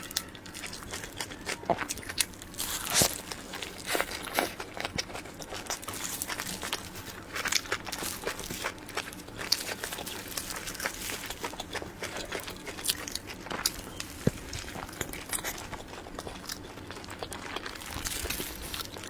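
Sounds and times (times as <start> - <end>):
chewing soft cake: 0.0 - 19.0.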